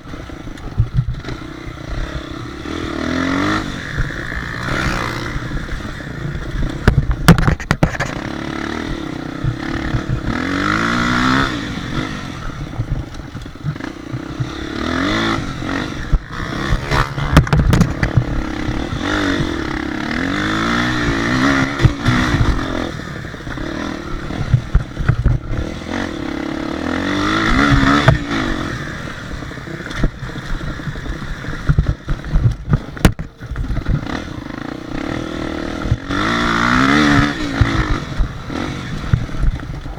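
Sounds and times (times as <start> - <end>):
dirt bike engines revving: 0.0 - 39.9
sharp knocks and clatter: 6.7 - 8.3, 16.1 - 19.5, 31.7 - 34.2.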